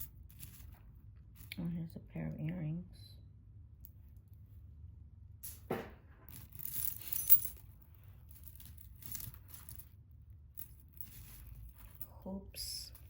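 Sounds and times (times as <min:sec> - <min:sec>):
jewelry clinking: 0:00.0 - 0:01.6, 0:05.4 - 0:13.0.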